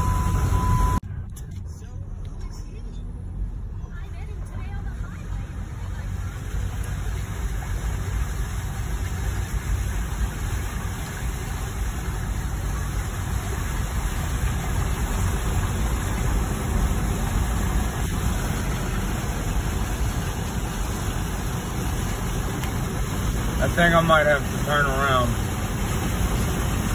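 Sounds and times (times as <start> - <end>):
car driving with low rumble: 0.0 - 26.9
constant hiss: 6.2 - 26.9.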